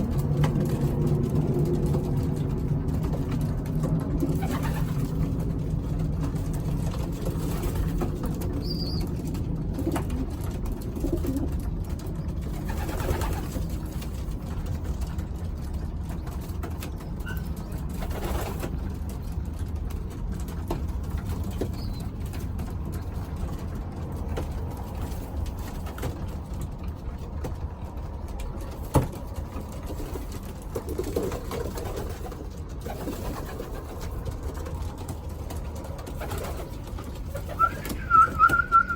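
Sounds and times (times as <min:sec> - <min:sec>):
pigeons cooing: 0:36.0 - 0:38.9.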